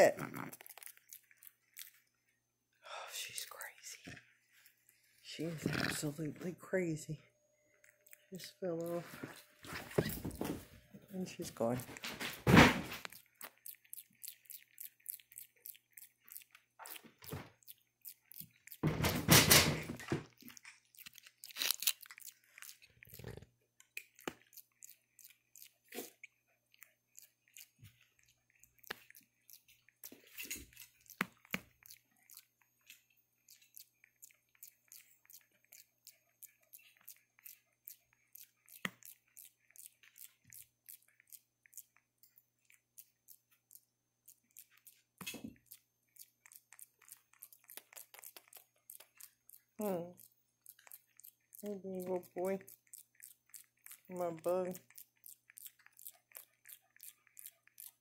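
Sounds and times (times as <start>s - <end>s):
wet mouth clicks: 20.5s - 58.0s.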